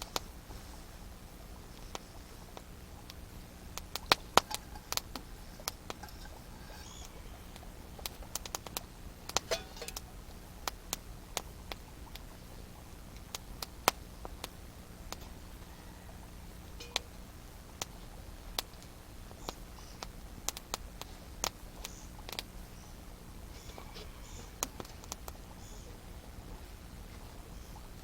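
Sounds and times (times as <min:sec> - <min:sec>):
campfire crackling and popping: 0:00.0 - 0:28.0.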